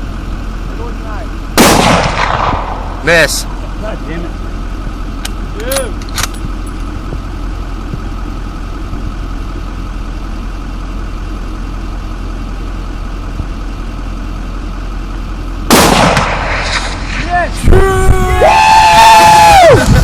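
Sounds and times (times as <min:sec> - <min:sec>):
low rumble: 0:00.0 - 0:20.0
rifle shot: 0:01.6 - 0:03.0, 0:15.7 - 0:17.2.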